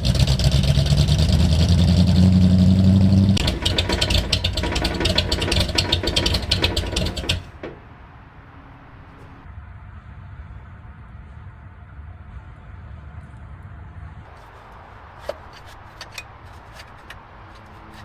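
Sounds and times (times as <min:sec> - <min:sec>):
rapid engine ticking: 0:00.0 - 0:07.9
car engine idling: 0:00.0 - 0:09.4, 0:14.3 - 0:18.0.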